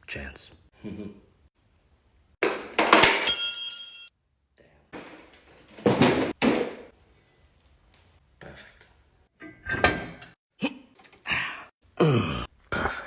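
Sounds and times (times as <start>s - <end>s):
metal clang ringing: 2.4s - 4.1s.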